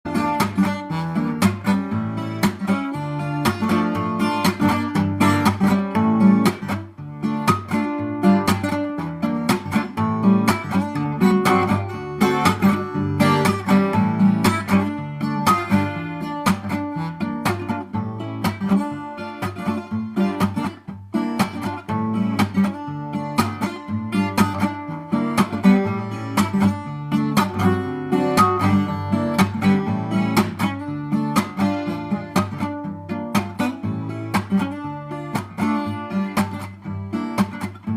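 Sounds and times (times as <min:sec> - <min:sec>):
twelve-string acoustic guitar strumming: 0:00.1 - 0:37.9.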